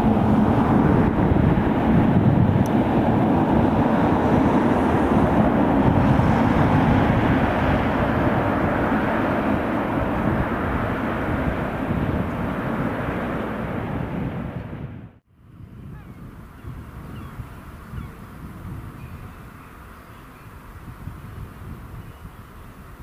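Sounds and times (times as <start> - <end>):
train passing: 0.0 - 15.2.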